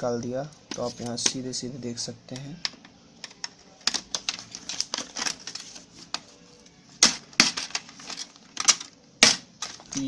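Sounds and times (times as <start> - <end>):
plastic laptop casing clicking: 2.4 - 6.3, 7.0 - 10.0.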